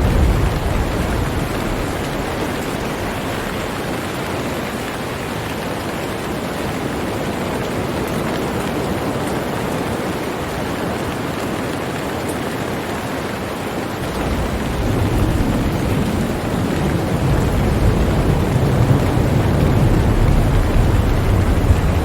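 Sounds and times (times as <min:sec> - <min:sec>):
low rumble of thunder: 0:00.0 - 0:05.0, 0:14.0 - 0:22.0
heavy rain hiss: 0:00.0 - 0:22.0.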